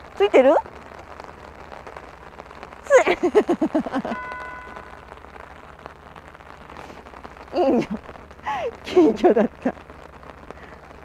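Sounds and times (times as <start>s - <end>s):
rain hissing: 0.0s - 11.0s
woman giggling: 2.9s - 4.2s, 7.6s - 8.0s, 8.6s - 9.7s.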